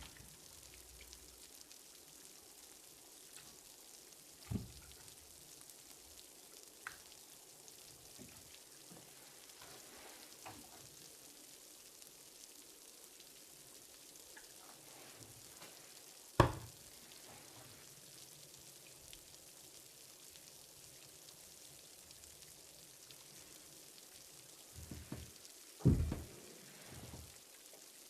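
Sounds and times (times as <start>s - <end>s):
faint steady hiss: 0.0s - 28.0s
soft thump: 16.4s - 16.7s, 24.8s - 26.4s.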